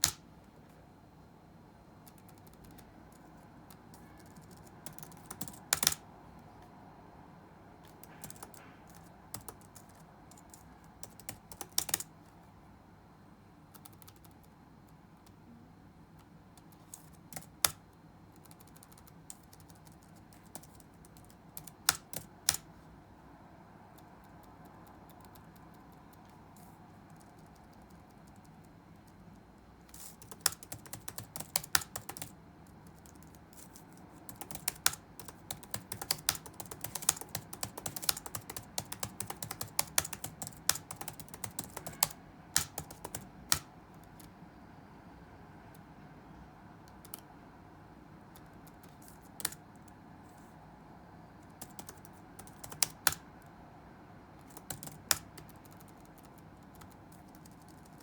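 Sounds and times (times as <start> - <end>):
low background hum: 0.0 - 58.0
typing on keyboard: 2.0 - 6.0, 7.8 - 12.1, 13.7 - 15.4, 16.2 - 22.7, 23.9 - 44.3, 46.8 - 47.3, 48.3 - 49.9, 51.4 - 53.4, 54.4 - 58.0.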